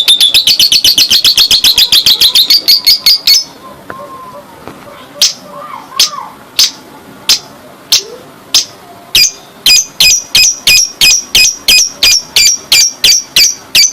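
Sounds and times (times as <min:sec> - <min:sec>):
lovebird shrill chirps: 0:00.0 - 0:03.6, 0:09.2 - 0:13.9.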